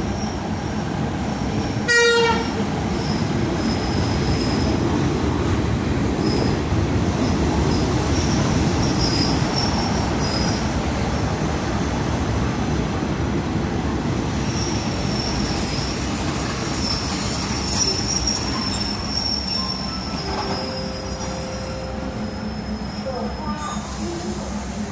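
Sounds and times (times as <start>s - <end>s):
train wheels rumbling on rail: 0.0s - 24.9s
brake and wheel squeal: 16.7s - 23.9s.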